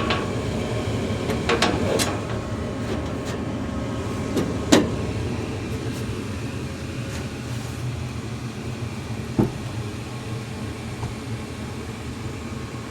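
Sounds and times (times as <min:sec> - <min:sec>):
gas furnace burner rumble: 0:00.0 - 0:12.9.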